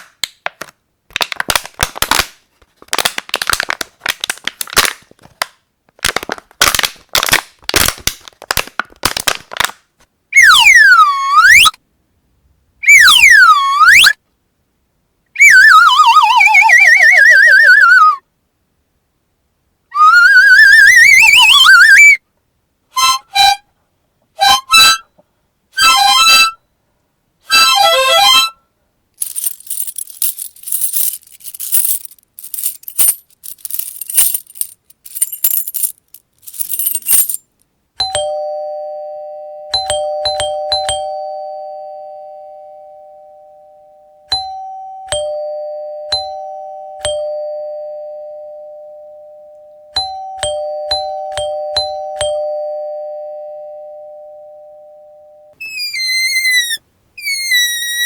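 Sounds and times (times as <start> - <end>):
keys jingling: 29.2 - 37.4
two-tone doorbell chime: 38.0 - 55.6.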